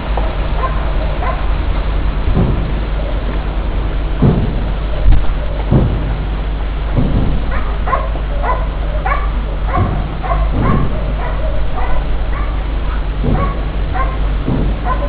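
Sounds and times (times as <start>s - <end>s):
dull low thuds: 0.0s - 15.0s
steady low hum: 0.0s - 15.0s
dog barking and yipping: 0.6s - 1.5s, 7.5s - 15.0s.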